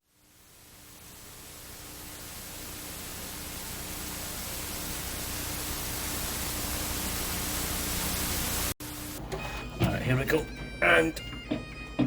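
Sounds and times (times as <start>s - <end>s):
static-like hiss: 0.0s - 9.2s
faint steady hum: 0.0s - 9.7s.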